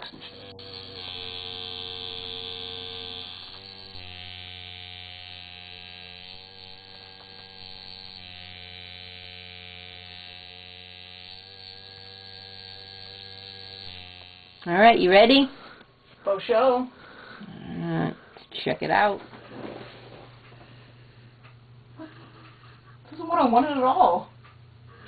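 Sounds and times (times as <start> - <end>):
electric tattoo machine buzzing: 0.0 - 15.8.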